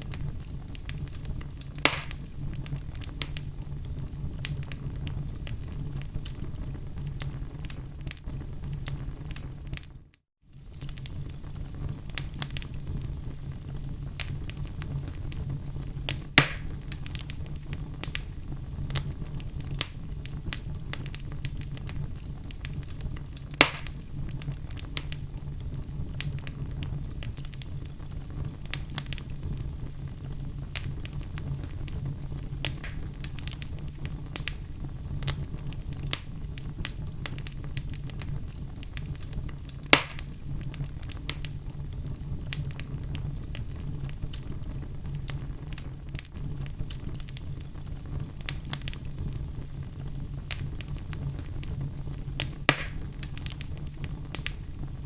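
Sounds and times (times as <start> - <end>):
sharp pops of fire: 0.0 - 55.0
wood fire crackling: 0.0 - 55.0.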